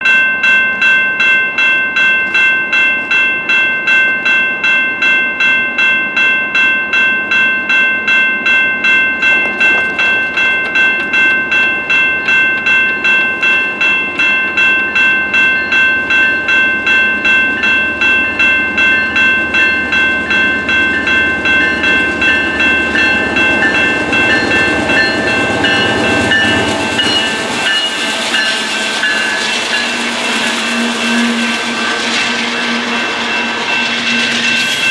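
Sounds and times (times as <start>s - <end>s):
railroad crossing bell ringing: 0.0s - 34.9s
diesel freight train rumble: 9.1s - 34.9s.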